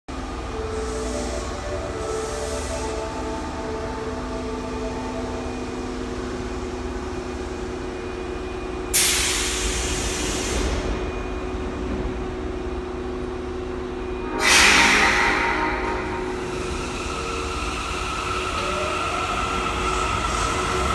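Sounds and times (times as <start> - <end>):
subway train electrical hum: 0.1 - 20.9
compressed air hiss: 14.4 - 15.5.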